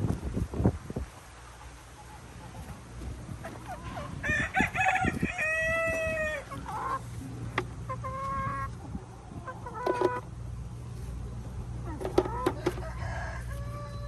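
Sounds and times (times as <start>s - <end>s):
rooster crowing: 4.1s - 6.6s, 12.4s - 14.0s.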